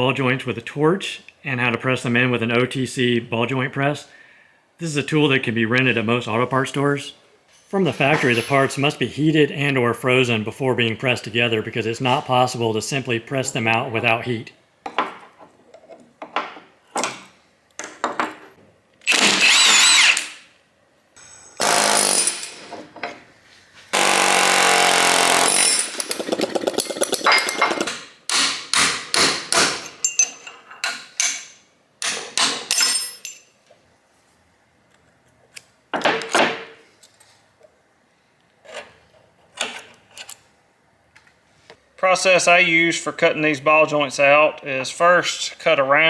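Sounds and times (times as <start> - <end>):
power tool noise: 19.0 - 20.5, 21.2 - 22.8, 23.9 - 26.7.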